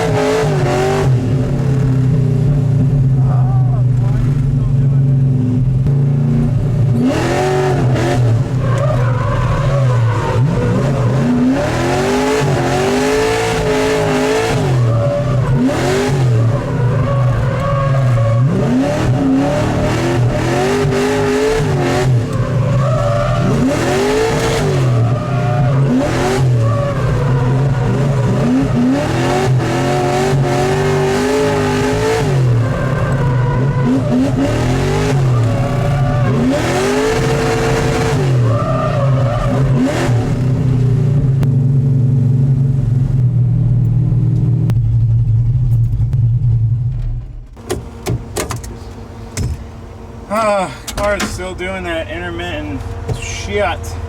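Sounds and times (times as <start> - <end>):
car engine revving hard: 0.0 - 42.1
tyre squeal: 8.6 - 11.5, 14.6 - 20.4, 21.2 - 28.9.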